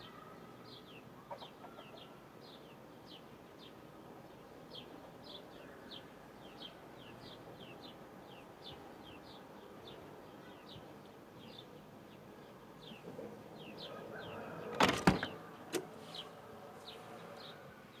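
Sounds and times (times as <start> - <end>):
loud knocks: 14.8 - 15.4.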